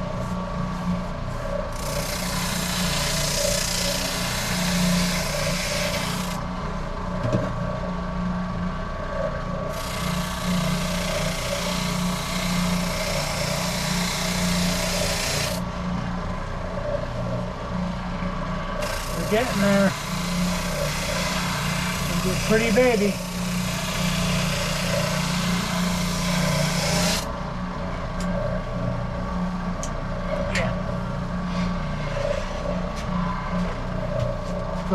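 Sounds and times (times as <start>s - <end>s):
machine hum: 0.0s - 34.9s
sanding wood: 1.7s - 6.4s, 9.8s - 15.6s, 18.8s - 27.2s.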